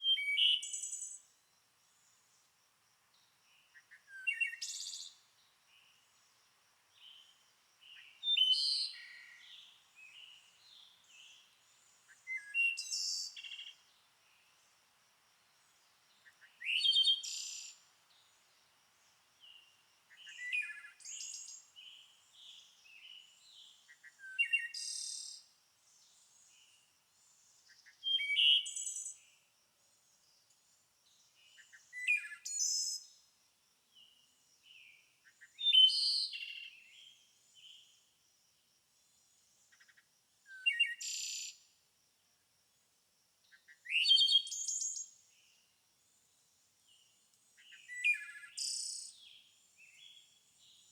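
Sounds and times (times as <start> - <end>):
songbird singing: 0.0 - 14.8, 15.5 - 33.3, 33.9 - 38.2, 39.4 - 41.7, 43.4 - 50.9
soft bird chirps: 31.3 - 33.1, 46.9 - 50.9.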